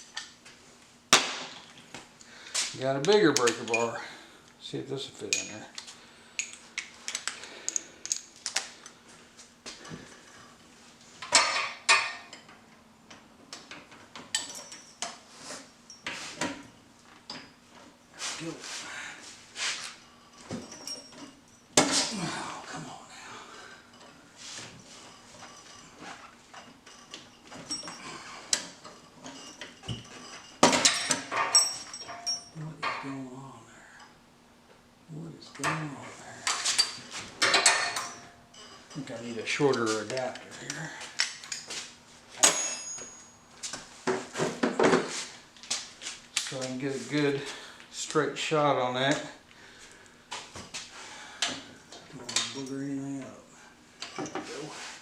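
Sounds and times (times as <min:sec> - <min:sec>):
metal tools clinking: 0:03.0 - 0:04.0, 0:05.2 - 0:05.7, 0:14.2 - 0:15.2, 0:20.1 - 0:22.2, 0:23.7 - 0:33.1, 0:36.4 - 0:41.8, 0:42.4 - 0:43.8, 0:54.0 - 0:54.6
ringing metal clatter: 0:42.4 - 0:43.5.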